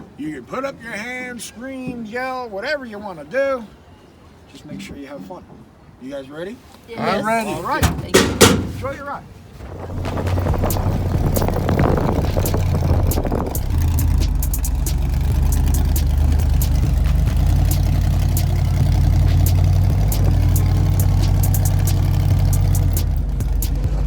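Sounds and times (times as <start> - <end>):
monster truck engine droning: 9.6 - 24.0
sharp clicks and rattles: 9.7 - 24.0.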